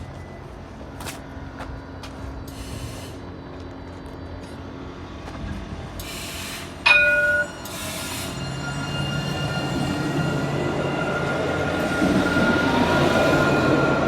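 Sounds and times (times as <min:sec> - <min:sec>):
tram motor hum: 0:00.0 - 0:14.0
loud ringing chime: 0:06.9 - 0:11.2.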